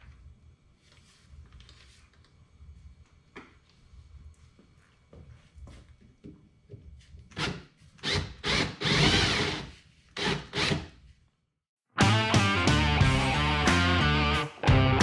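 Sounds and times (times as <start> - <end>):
music: 12.0 - 15.0.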